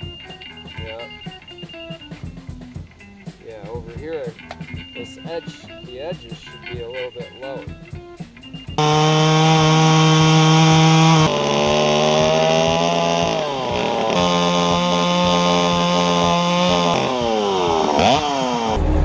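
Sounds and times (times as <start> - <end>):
chainsaw running at high revs: 8.8 - 18.8.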